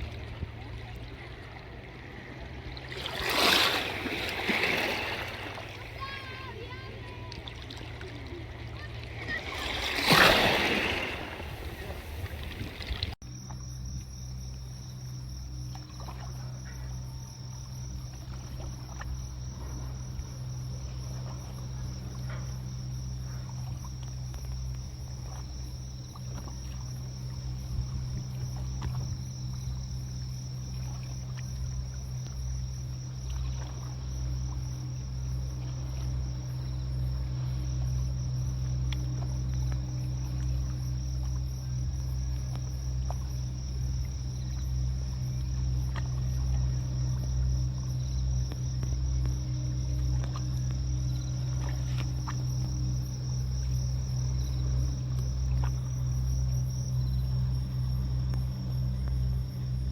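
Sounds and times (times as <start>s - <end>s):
crickets chirping: 0.0s - 59.9s
low steady hum: 0.0s - 59.9s
faint ticks: 38.6s - 41.5s, 47.7s - 53.0s, 58.2s - 59.4s.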